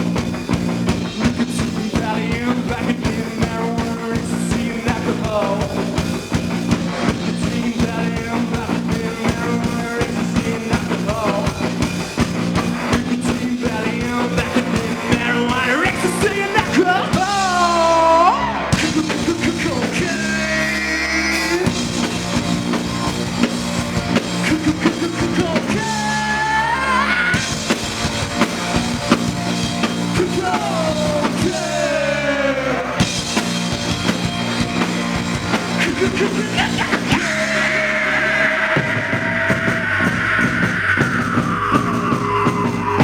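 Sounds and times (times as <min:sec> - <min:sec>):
bass guitar: 0:00.0 - 0:43.0
drum kit: 0:00.0 - 0:43.0
guitars: 0:00.0 - 0:43.0
person singing: 0:12.9 - 0:21.9, 0:24.4 - 0:27.5, 0:30.2 - 0:33.0, 0:35.8 - 0:43.0.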